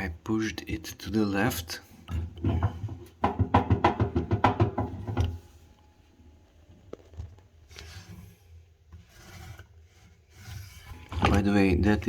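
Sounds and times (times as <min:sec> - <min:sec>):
washing machine drum parts clicking: 0:02.1 - 0:05.4
faint handling sounds: 0:05.2 - 0:12.0.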